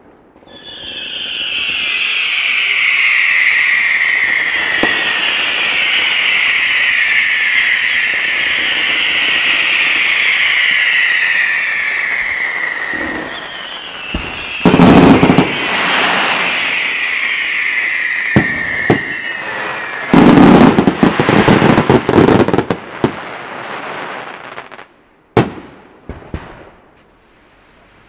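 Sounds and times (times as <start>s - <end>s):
firework bangs and crackle: 0.0s - 28.0s
firework whistle falling in pitch: 0.4s - 22.7s.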